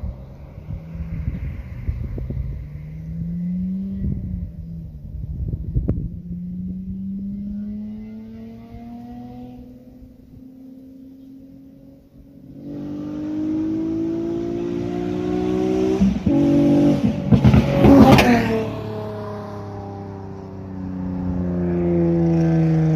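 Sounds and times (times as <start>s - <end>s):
car accelerating past: 0.0s - 22.9s.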